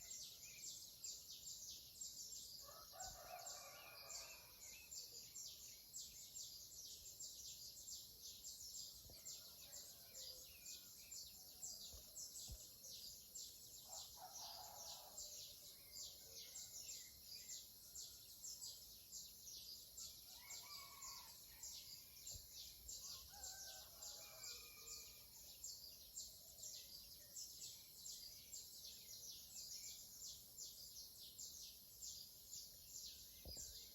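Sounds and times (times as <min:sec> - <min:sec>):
distant rooster crowing: 0:02.6 - 0:04.5, 0:20.3 - 0:21.8, 0:23.1 - 0:25.2.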